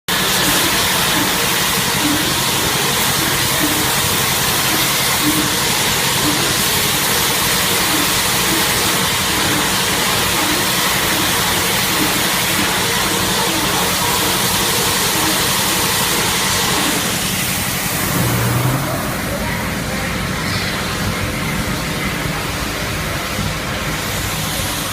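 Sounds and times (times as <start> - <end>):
machine hiss and hum: 0.1 - 24.9
steady tones: 0.5 - 20.3.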